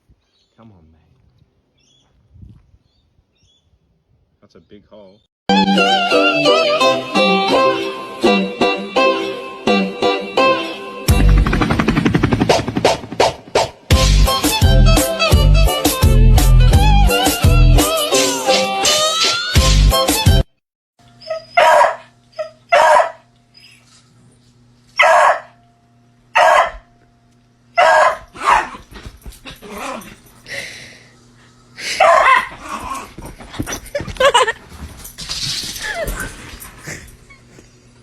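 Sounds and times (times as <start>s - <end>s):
dog barking: 21.3s - 23.3s, 25.0s - 25.6s, 26.4s - 26.9s, 27.8s - 28.8s, 31.9s - 33.2s.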